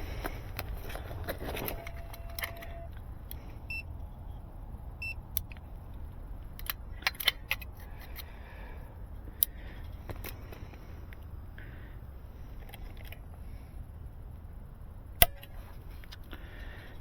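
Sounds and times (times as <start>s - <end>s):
short electronic beeps: 1.6s - 3.0s.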